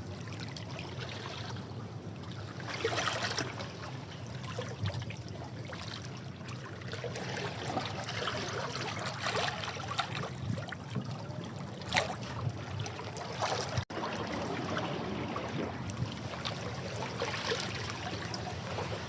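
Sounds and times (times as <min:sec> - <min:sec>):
sea water washing over rocks: 0:13.6 - 0:19.0.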